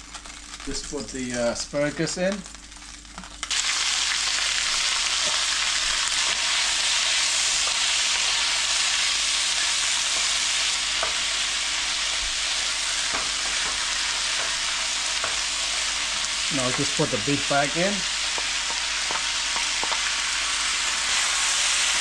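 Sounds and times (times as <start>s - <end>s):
asparagus sizzling in a frying pan: 0.0s - 22.0s
wooden spatula tapping and scraping: 18.3s - 20.1s.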